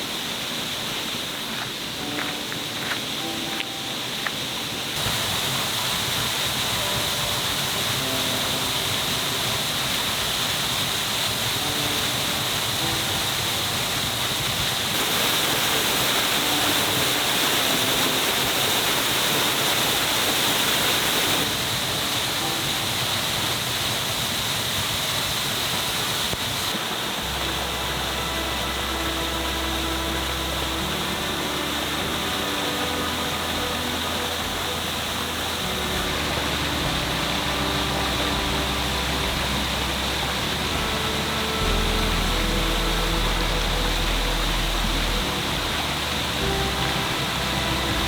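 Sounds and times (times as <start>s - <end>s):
waterfall rushing water: 0.0s - 48.0s.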